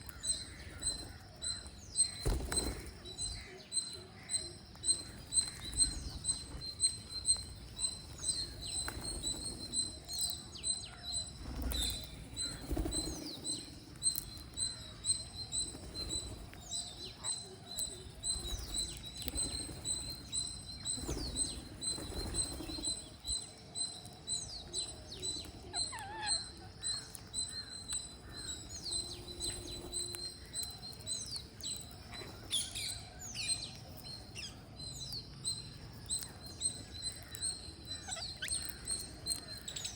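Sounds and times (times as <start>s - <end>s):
parrots chirping: 25.7s - 26.6s.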